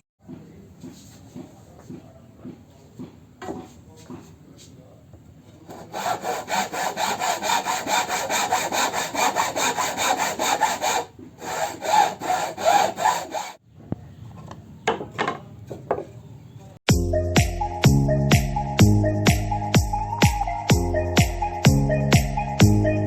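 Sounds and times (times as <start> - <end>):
hand saw cutting wood: 5.7 - 13.6
wood knocking: 14.4 - 16.2.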